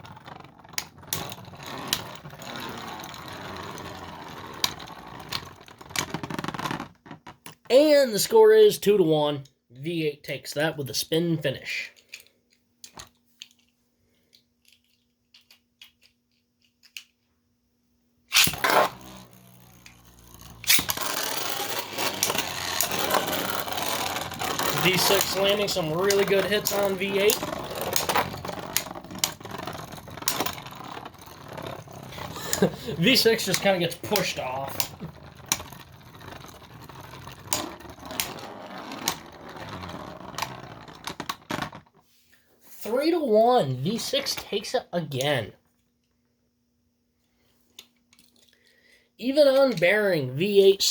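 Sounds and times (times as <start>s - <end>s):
small plastic clicks: 12.0s - 17.3s
spinning tops clashing: 18.3s - 39.9s
loud spinning top launch: 18.3s - 40.4s.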